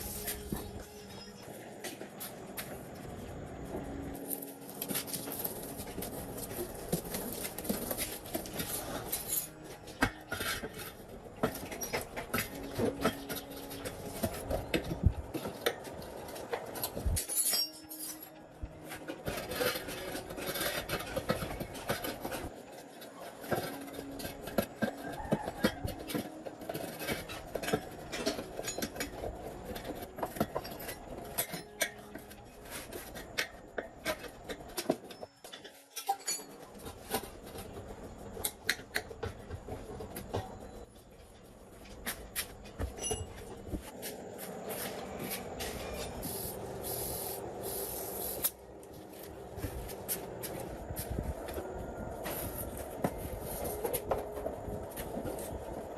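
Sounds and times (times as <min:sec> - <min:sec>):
metal tools clinking: 0:04.2 - 0:14.4, 0:16.2 - 0:33.2, 0:34.0 - 0:37.2, 0:42.9 - 0:43.6.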